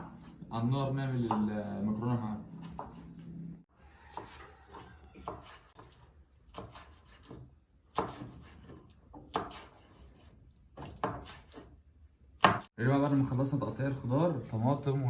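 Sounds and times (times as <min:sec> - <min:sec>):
knife chopping on cutting board: 0:01.1 - 0:01.6, 0:02.6 - 0:03.3, 0:04.1 - 0:11.8, 0:12.4 - 0:12.8.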